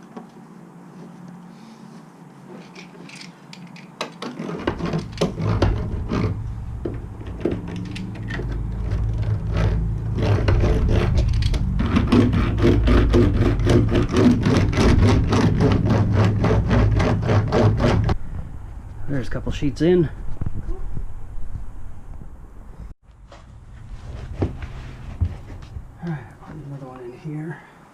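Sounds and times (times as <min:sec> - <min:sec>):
clicks and scrapes on metal panel: 0:04.0 - 0:18.2
low rumble: 0:05.0 - 0:26.4.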